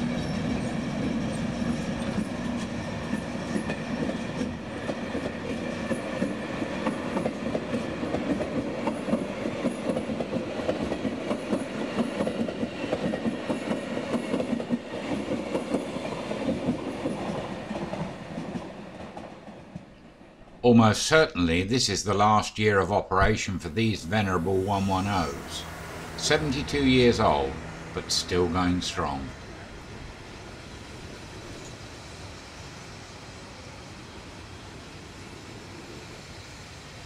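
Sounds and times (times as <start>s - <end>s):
train wheels clicking over rail joints: 0.0s - 20.0s
train rolling noise: 0.0s - 37.0s.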